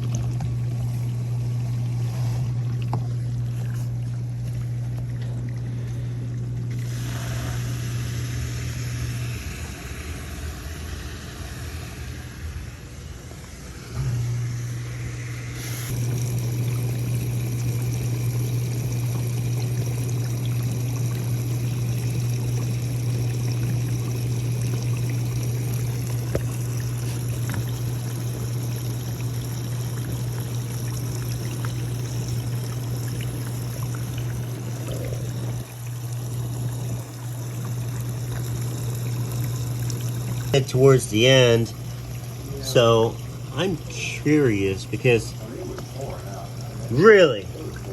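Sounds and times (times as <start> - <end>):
dishwasher pump motor humming: 0.0 - 47.9
water spraying and splashing: 15.4 - 42.6.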